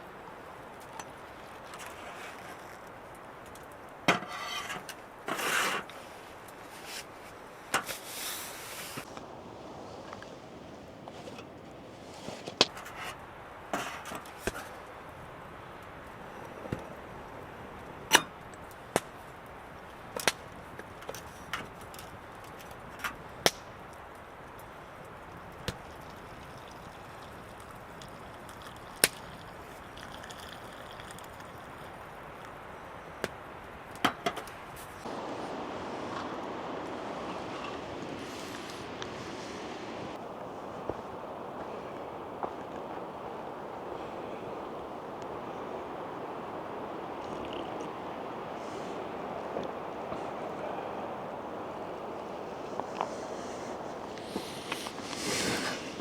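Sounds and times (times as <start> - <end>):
wood fire crackling: 2.7 - 13.0, 34.9 - 56.0.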